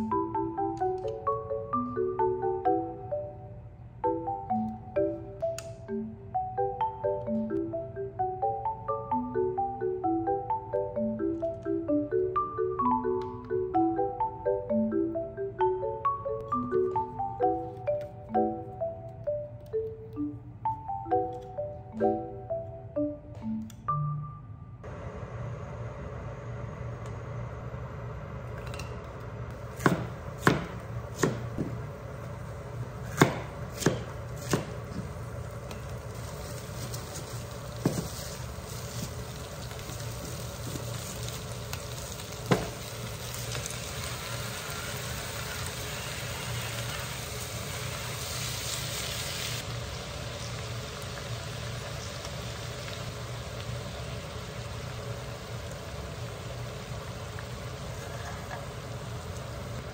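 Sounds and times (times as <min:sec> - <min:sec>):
steady low hum: 0:13.8 - 0:48.3
food sizzling in a frying pan: 0:35.9 - 0:59.9.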